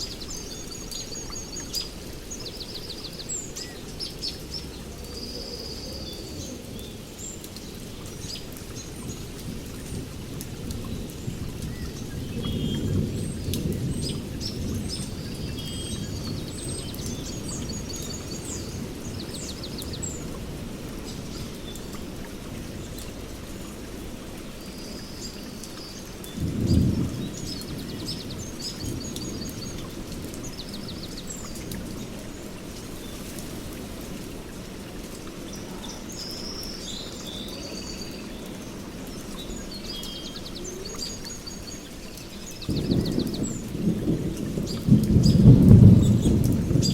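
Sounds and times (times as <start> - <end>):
steady rain: 0.0 - 46.9
thunder rumble: 8.9 - 21.5, 26.4 - 34.6, 41.9 - 46.9
birds chirping and trilling: 35.4 - 46.9.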